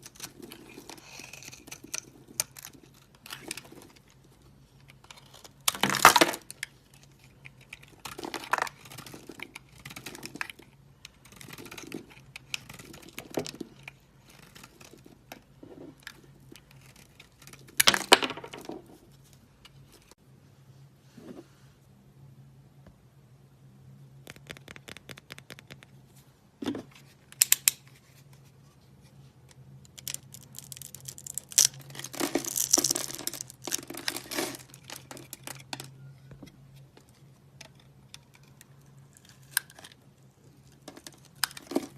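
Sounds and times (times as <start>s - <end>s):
dry soap crackling and crunching: 0.0s - 18.6s, 29.8s - 36.1s, 36.8s - 41.9s.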